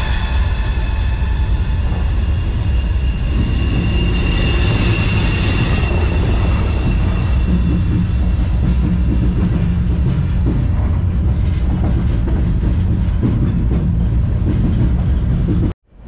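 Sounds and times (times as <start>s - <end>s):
steel wheels squealing: 0.0s - 10.8s
freight train rumble: 0.0s - 16.0s.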